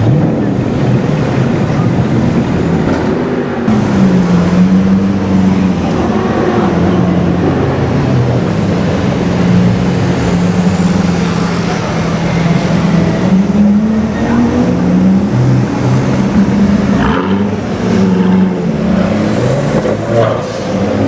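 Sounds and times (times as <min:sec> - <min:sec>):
car engine running low speed: 0:00.0 - 0:21.0.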